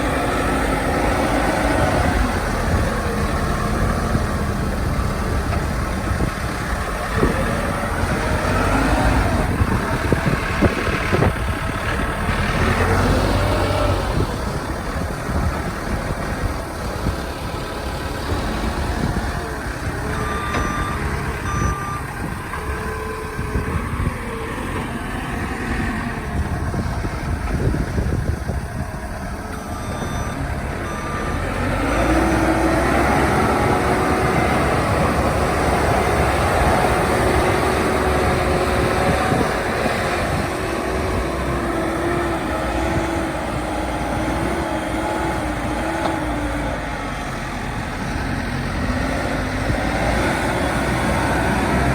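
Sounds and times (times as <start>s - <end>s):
diesel engine running: 0.0s - 51.9s
reversing alarm beeping: 18.5s - 24.5s, 29.4s - 39.5s.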